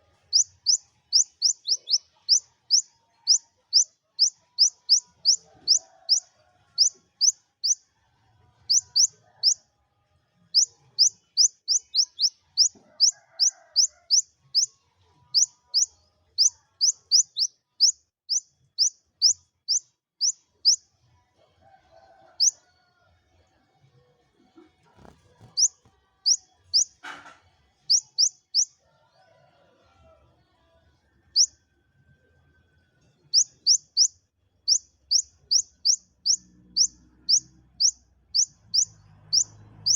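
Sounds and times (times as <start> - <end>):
sunbird chirping: 0.3 - 6.2, 6.8 - 7.8, 8.7 - 9.6, 10.6 - 14.7, 15.4 - 20.4, 27.9 - 28.7, 33.4 - 34.1, 34.7 - 39.9.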